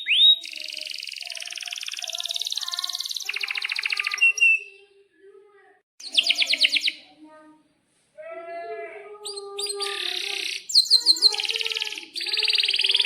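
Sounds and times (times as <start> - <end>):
canary singing: 0.0 - 5.2, 6.0 - 7.2, 8.6 - 13.0.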